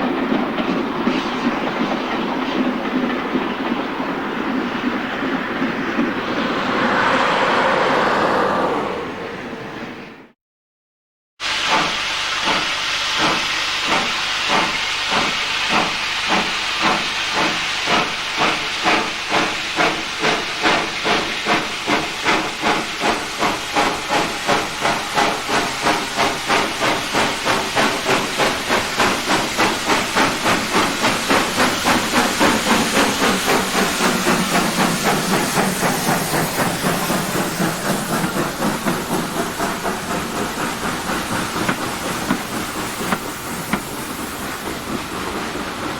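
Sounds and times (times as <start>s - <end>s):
steam hiss: 0.0s - 9.2s, 11.4s - 45.9s
steam locomotive exhaust chuffs: 11.4s - 45.9s.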